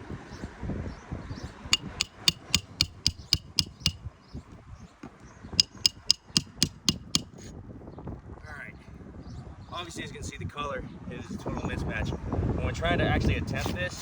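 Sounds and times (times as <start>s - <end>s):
hammer striking nails: 1.8s - 4.0s, 5.6s - 7.4s.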